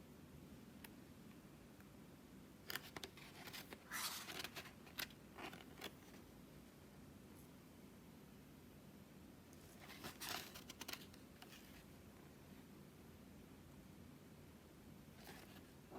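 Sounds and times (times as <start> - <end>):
paper rustling and clicks: 2.7 - 6.2, 9.8 - 11.6.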